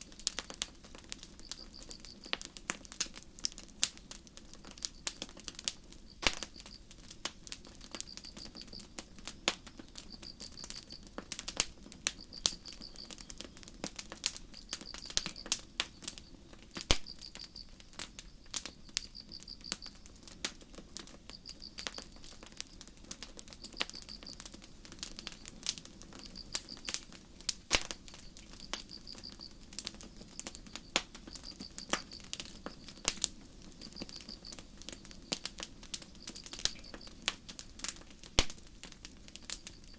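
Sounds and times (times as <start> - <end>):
campfire crackling and popping: 0.0 - 39.9
cricket chirping in trills: 0.9 - 2.5, 3.9 - 37.9, 39.2 - 39.9.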